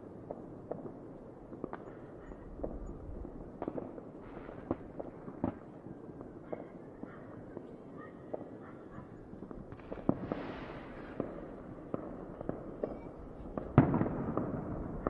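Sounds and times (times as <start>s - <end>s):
fireworks bangs and pops: 0.0s - 2.0s, 2.6s - 6.7s, 9.4s - 15.0s.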